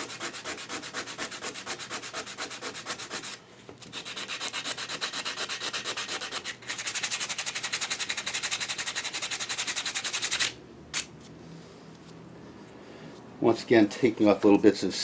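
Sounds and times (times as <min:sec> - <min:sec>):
sandpaper rubbing on metal: 0:00.0 - 0:10.5.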